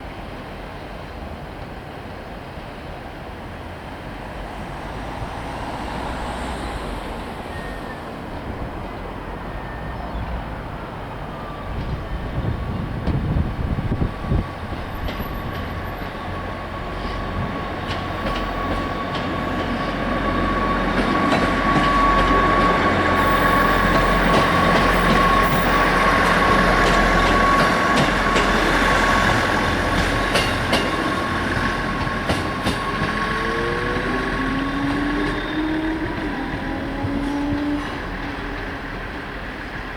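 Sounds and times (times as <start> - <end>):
diesel train engines whining: 0.2 - 39.9
wheels clicking over rail joints: 14.7 - 39.9.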